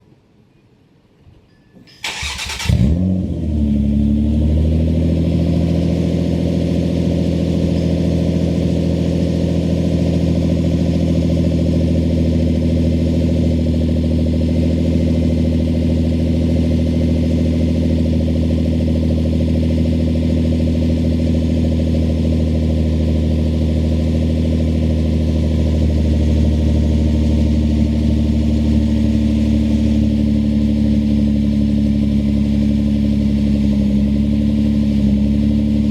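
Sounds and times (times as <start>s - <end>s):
car engine starting and idling: 2.0s - 35.9s.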